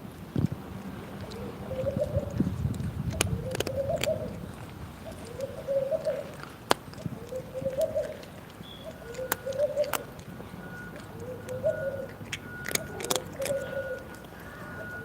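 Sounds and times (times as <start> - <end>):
dove cooing: 0.8 - 15.0
sharp clicks: 2.7 - 4.2.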